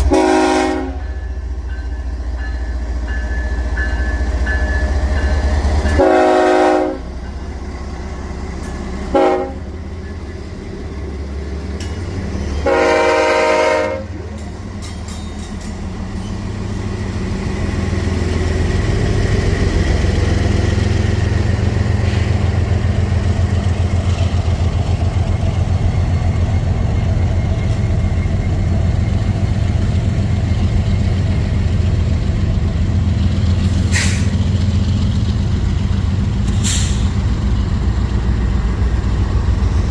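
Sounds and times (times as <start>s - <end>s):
locomotive horn blasts: 0.0s - 1.1s, 5.9s - 7.1s, 9.1s - 9.7s, 12.6s - 14.3s
train engine and wheels rumbling: 0.0s - 39.9s
brief hiss: 36.5s - 37.2s.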